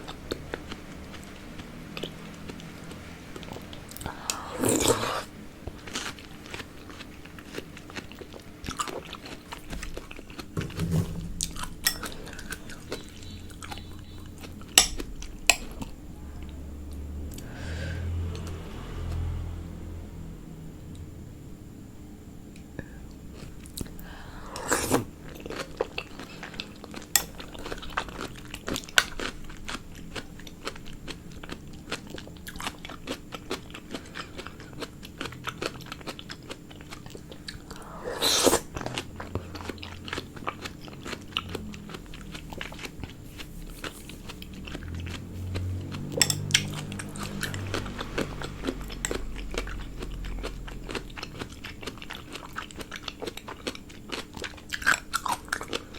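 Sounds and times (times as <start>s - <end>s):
crunchy chewing and biting: 23.3s - 55.9s.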